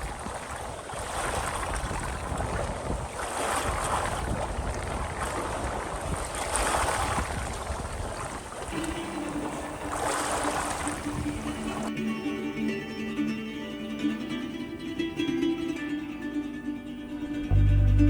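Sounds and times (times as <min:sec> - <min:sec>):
wind and water rushing: 0:00.0 - 0:11.9
plucked guitar music: 0:08.7 - 0:18.0.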